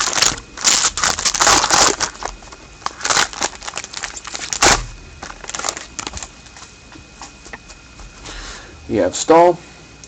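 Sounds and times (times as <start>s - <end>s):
plastic wrapper crinkling and tearing: 0.0s - 6.4s.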